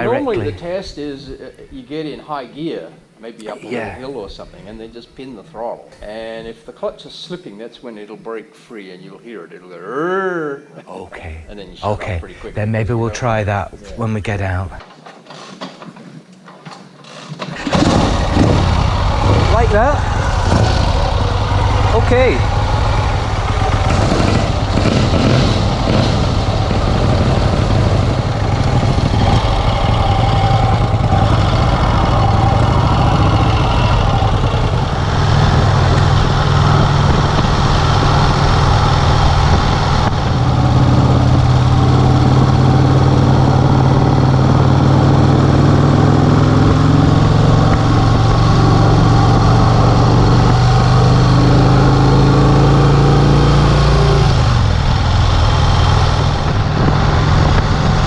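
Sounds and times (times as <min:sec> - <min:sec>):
motorcycle engine running: 0:17.6 - 0:58.0.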